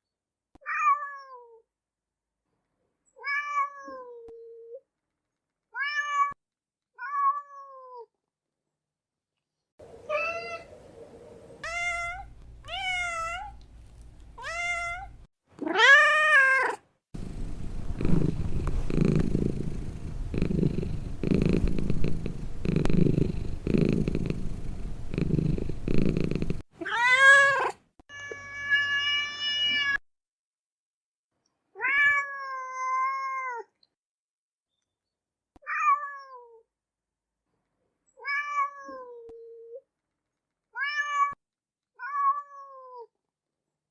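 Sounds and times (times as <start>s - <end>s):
cat meowing: 11.6s - 13.6s, 14.4s - 16.8s, 38.2s - 39.3s, 40.8s - 41.4s, 42.0s - 43.1s
cat purring: 17.2s - 26.6s.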